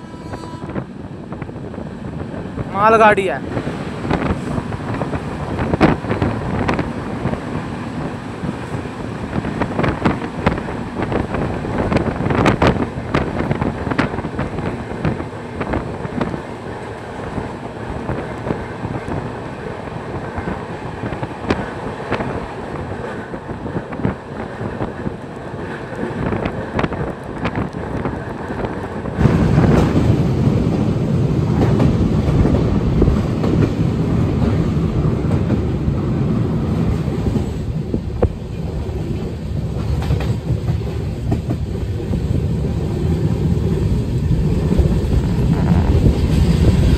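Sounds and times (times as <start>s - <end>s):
passing goods train: 0.0s - 46.9s
train wheels clattering: 36.9s - 46.9s.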